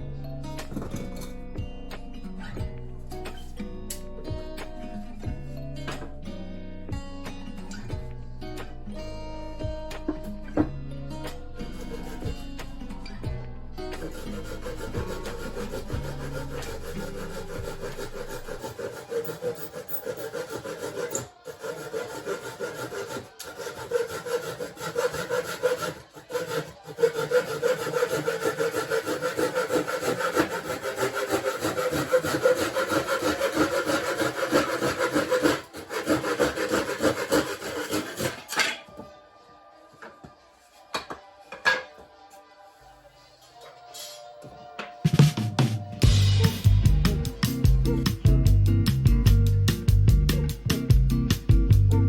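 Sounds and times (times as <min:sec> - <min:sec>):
hand saw cutting wood: 0:11.4 - 0:13.2, 0:13.9 - 0:39.0, 0:46.0 - 0:49.0.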